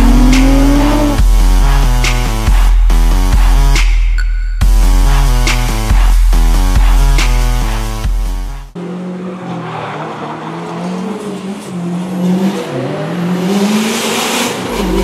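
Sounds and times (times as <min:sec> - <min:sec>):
sports car engine accelerating: 0:00.0 - 0:02.7, 0:08.4 - 0:15.0.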